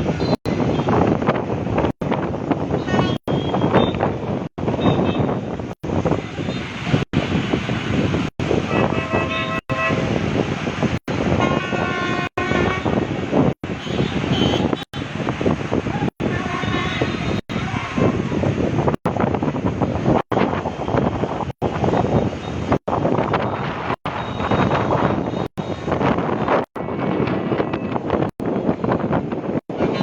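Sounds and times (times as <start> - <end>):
engines and traffic rushing: 0.0 - 30.0
vehicle horns blasting: 8.6 - 10.3, 11.2 - 13.1, 13.7 - 15.0.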